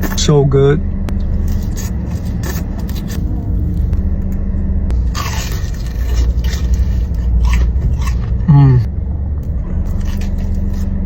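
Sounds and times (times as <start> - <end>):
low rumble and hum: 0.0 - 11.0
crisp crunch: 1.2 - 4.0, 5.0 - 8.9, 9.9 - 11.0
person biting and chewing: 1.2 - 4.0, 4.9 - 11.0.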